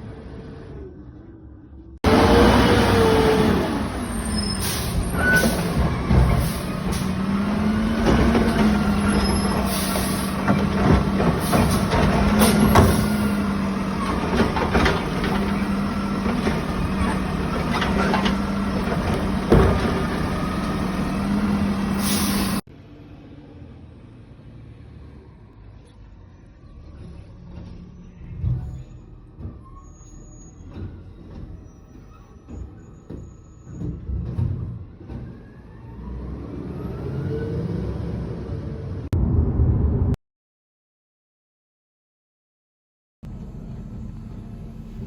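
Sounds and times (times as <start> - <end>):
garbage truck engine idling: 2.1 - 22.6.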